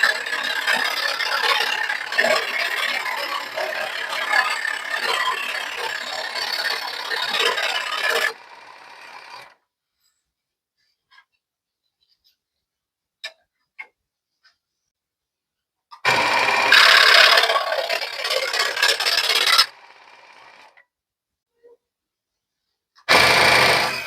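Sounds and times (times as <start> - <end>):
saw motor running: 0.0 - 9.5, 16.0 - 20.7, 23.1 - 24.0
scroll saw rattling and scraping: 0.0 - 9.5, 16.1 - 20.7.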